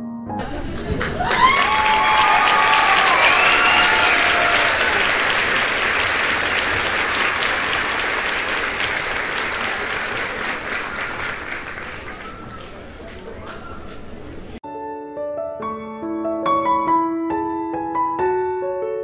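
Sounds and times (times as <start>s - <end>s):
applause: 0.4s - 14.3s.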